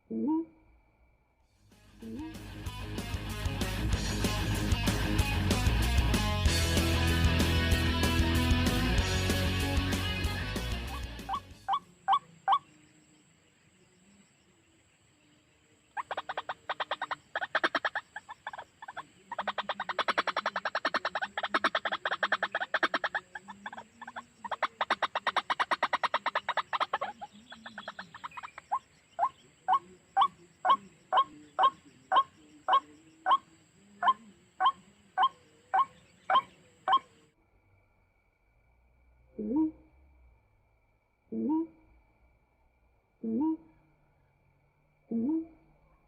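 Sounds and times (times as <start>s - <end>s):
bird croaking pulses: 15.9s - 37.2s.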